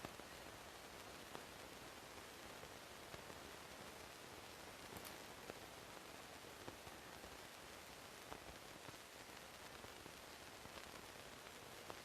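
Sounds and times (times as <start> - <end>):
faint steady hiss: 0.0 - 12.0
tiny clicks: 4.8 - 5.2.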